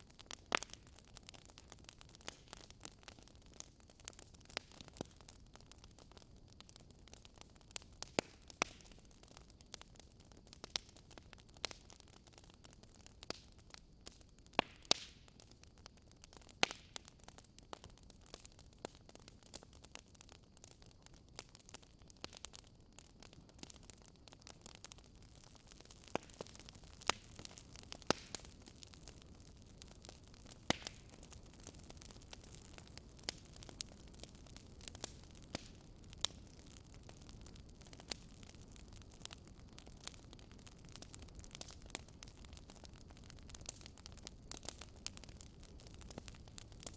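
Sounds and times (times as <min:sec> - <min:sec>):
wood fire crackling and popping: 0:00.0 - 0:46.9
fire hiss: 0:21.4 - 0:46.9.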